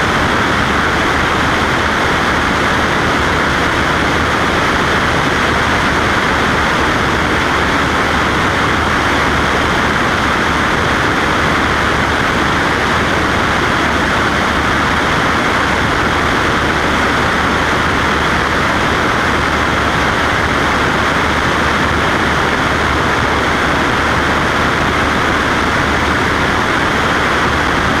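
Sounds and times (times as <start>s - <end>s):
propeller plane engine droning: 0.0s - 28.0s.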